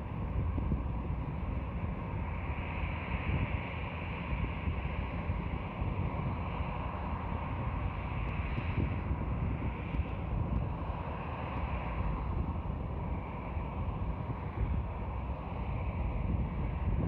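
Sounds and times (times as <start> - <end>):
jet engines rumbling: 0.0 - 17.0
wind buffeting microphone: 0.0 - 17.0.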